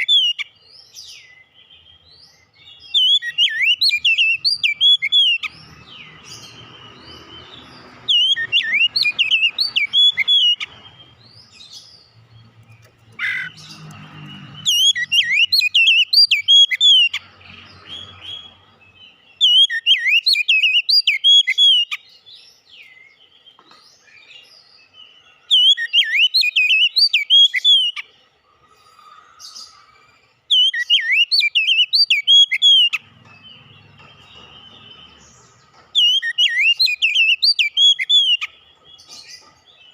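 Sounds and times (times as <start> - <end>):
bird singing high whistles: 2.9 - 5.5, 8.1 - 10.7, 14.7 - 17.2, 19.4 - 22.0, 25.5 - 28.0, 30.5 - 33.0, 36.0 - 38.6.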